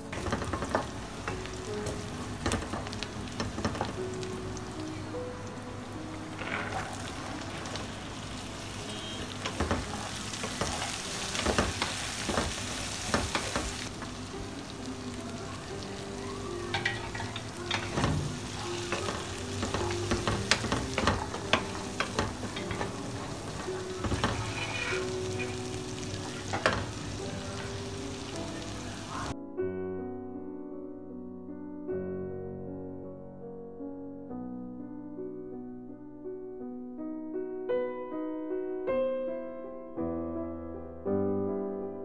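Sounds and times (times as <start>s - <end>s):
wooden spatula scraping pan: 0.1s - 4.9s, 6.3s - 14.4s, 16.6s - 29.3s
vegetables sizzling in hot oil: 0.1s - 29.3s.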